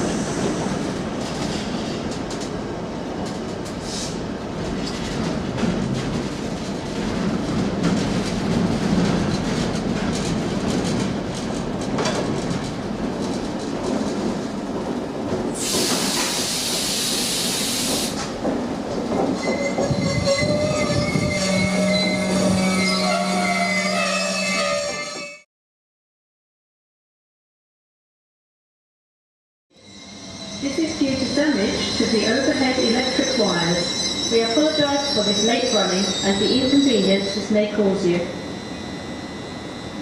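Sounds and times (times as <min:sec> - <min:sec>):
train wheels rumbling on rails: 0:00.0 - 0:23.6
loud hiss of air: 0:15.6 - 0:18.2.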